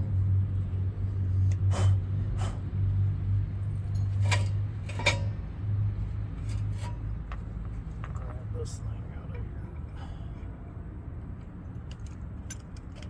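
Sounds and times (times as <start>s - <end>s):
metallic clinks of brake pads: 3.8s - 5.4s, 11.8s - 13.0s.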